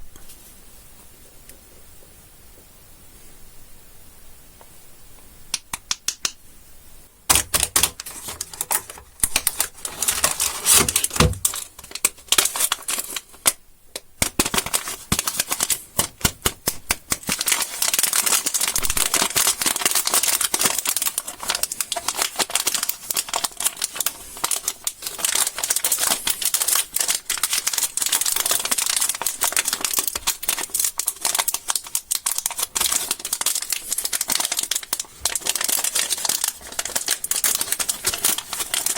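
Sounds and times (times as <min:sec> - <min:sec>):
candy wrappers crinkling: 0:07.3 - 0:13.6, 0:14.2 - 0:38.9.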